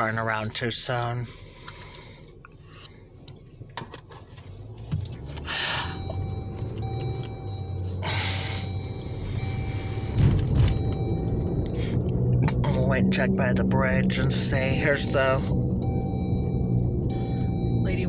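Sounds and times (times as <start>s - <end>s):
car engine and road rumble: 0.0s - 18.0s
faint high steady tones: 5.8s - 11.8s, 14.1s - 18.0s.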